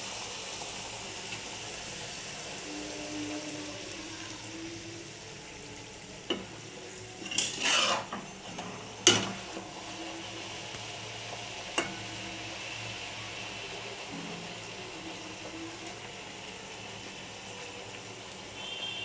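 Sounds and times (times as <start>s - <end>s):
frying oil sizzling: 0.0s - 19.0s
utensil scraping pan: 7.1s - 9.6s
metal utensil clinking on pan: 7.2s - 9.6s, 11.8s - 12.2s.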